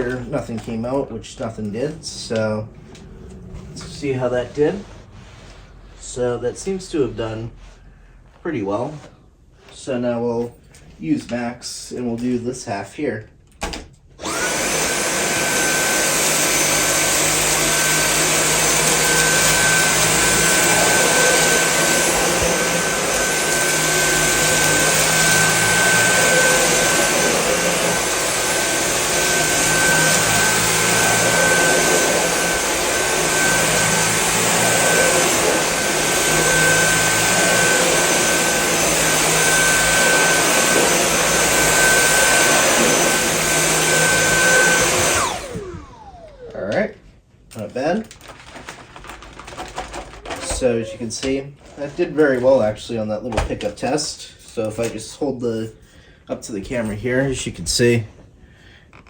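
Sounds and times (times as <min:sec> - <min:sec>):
handheld vacuum cleaner running: 0:14.2 - 0:46.8.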